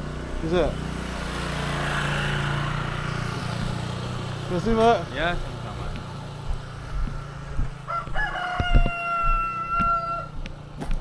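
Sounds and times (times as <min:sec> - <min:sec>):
motorcycle engine idling: 0:00.0 - 0:11.0
rooster crowing: 0:07.0 - 0:10.5.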